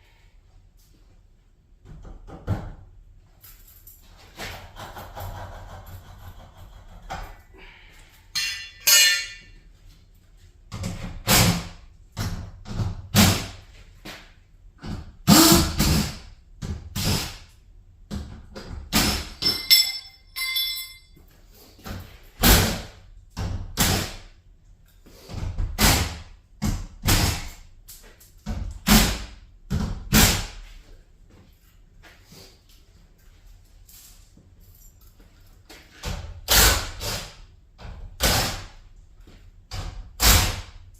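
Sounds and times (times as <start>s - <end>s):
ringing metallic clang: 8.3s - 9.6s, 19.4s - 21.2s.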